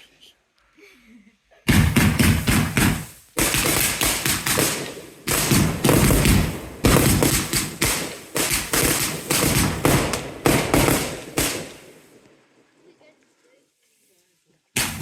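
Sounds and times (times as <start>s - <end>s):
fireworks banging: 1.6s - 12.8s, 14.8s - 15.0s.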